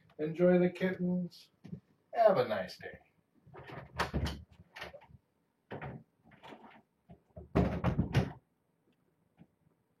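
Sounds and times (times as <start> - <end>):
door knocking and clattering: 3.6 - 5.0, 5.7 - 8.4.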